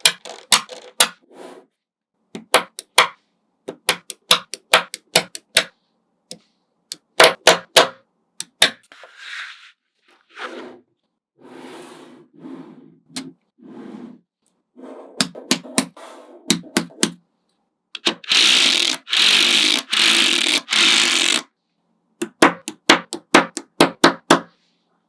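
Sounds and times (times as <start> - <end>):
magnet balls rattling and rolling: 0.0 - 1.2.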